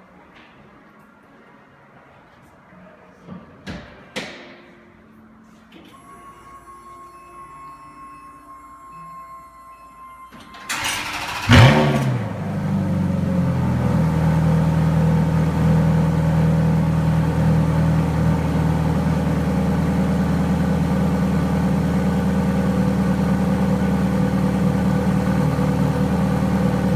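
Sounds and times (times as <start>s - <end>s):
car engine revving then idling: 10.7s - 26.9s.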